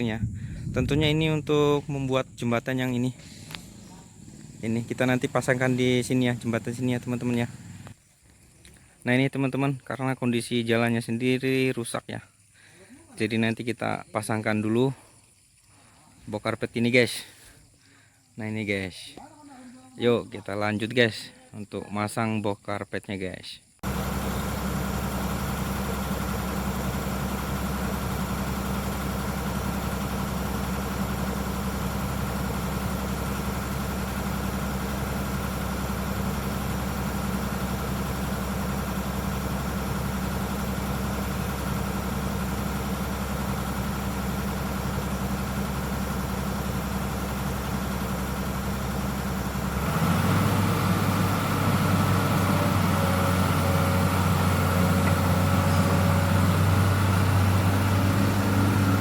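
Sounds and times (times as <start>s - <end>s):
excavator diesel engine idling: 0.0s - 9.8s, 23.8s - 59.0s.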